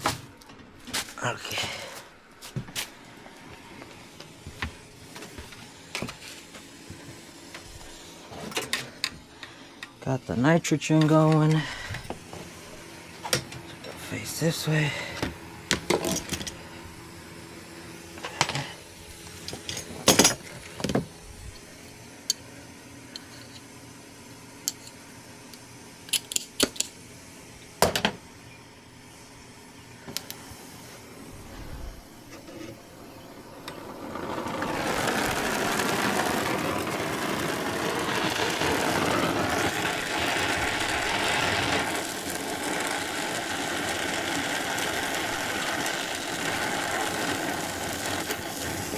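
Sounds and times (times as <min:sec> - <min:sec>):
brazing torch hissing: 0:00.0 - 0:25.4, 0:28.9 - 0:48.9
tools clicking and knocking: 0:26.1 - 0:27.0.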